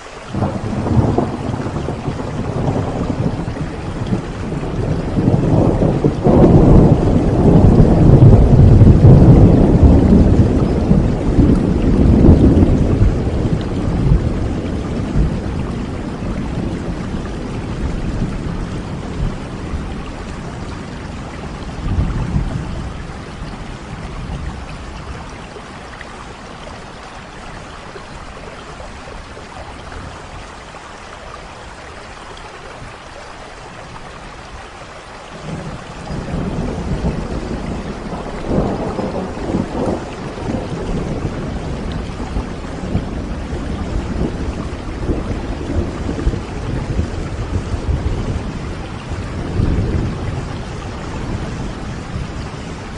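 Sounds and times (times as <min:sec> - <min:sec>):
steady rain: 0:00.0 - 0:52.9
rolling thunder: 0:00.3 - 0:26.3, 0:35.3 - 0:52.9.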